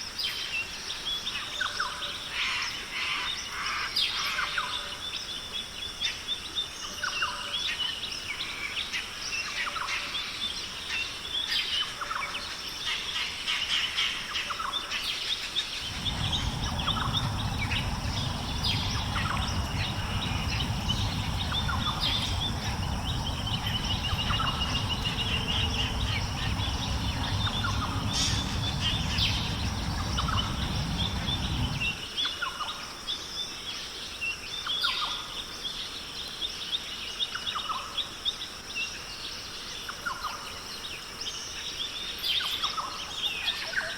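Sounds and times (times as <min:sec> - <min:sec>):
low rumble: 0:15.7 - 0:32.1.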